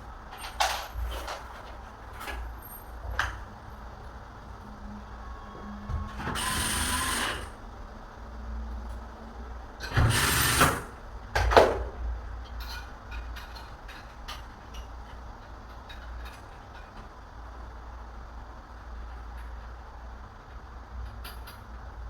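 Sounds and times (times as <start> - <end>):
short mechanical noise bursts: 5.2 - 7.6, 9.8 - 11.0.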